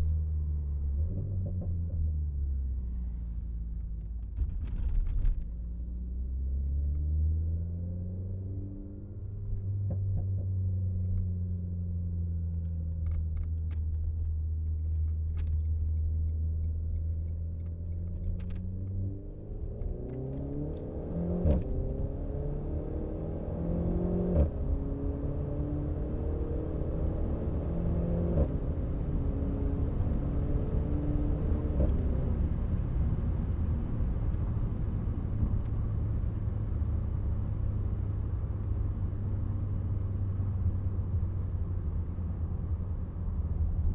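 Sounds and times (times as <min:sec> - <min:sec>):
car engine accelerating: 0:06.1 - 0:43.9.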